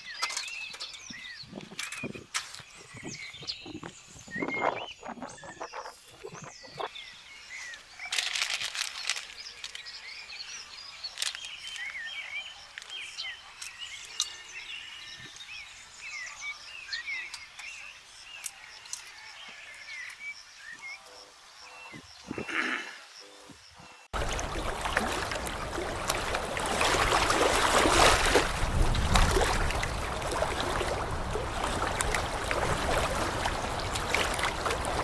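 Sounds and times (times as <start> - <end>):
small birds chirping: 0.0 - 24.2
rustle: 7.2 - 16.4.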